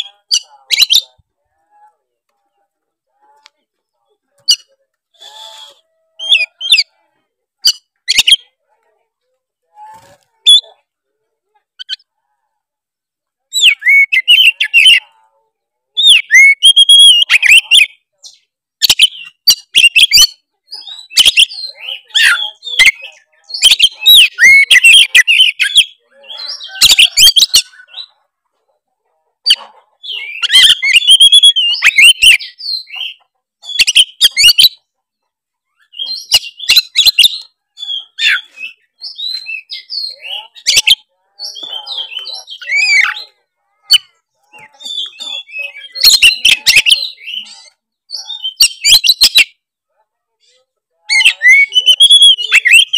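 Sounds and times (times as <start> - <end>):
songbird whistling and chattering: 0.0 - 1.2, 4.4 - 6.9, 7.6 - 8.5, 11.8 - 12.0, 13.5 - 15.1, 16.0 - 28.2, 29.4 - 34.8, 35.8 - 49.6, 51.1 - 52.9.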